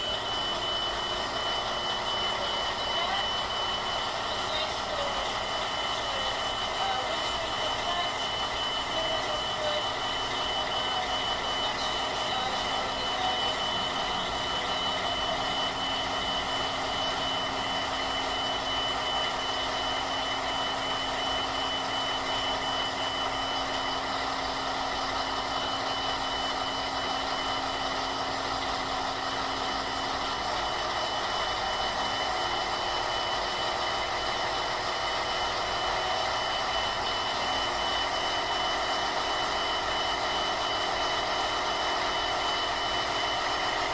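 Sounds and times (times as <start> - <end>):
electronic warning beeps: 0.0 - 28.2.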